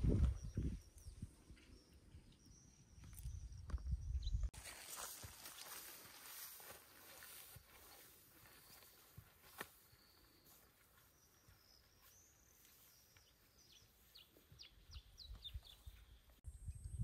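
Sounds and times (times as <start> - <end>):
bird chirping: 0.1 - 4.5, 6.1 - 17.0.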